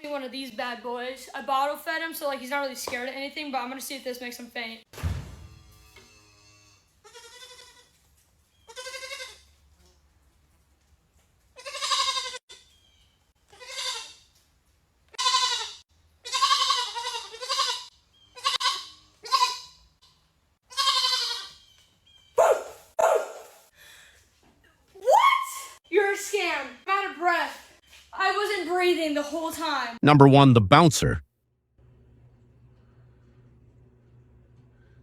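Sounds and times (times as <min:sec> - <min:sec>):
goat bleating: 0:07.0 - 0:07.9, 0:08.6 - 0:09.4, 0:11.6 - 0:12.4, 0:13.5 - 0:14.2, 0:15.1 - 0:19.8, 0:20.7 - 0:21.6.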